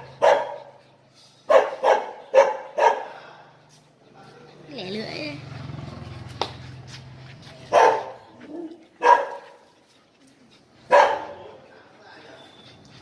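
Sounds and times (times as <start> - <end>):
small dog barking: 0.2 - 0.6, 1.5 - 3.1, 7.7 - 9.5, 10.9 - 11.4.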